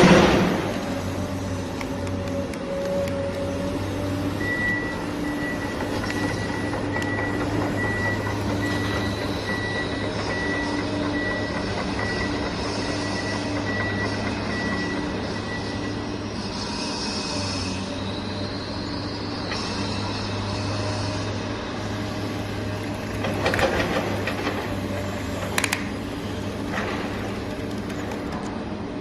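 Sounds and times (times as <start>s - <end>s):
reversing alarm beeping: 2.8s - 17.8s.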